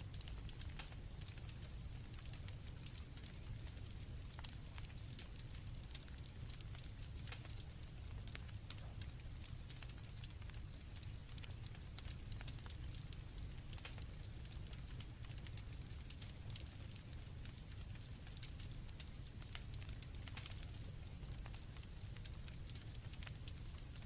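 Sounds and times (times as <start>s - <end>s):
campfire crackling and popping: 0.0s - 24.0s.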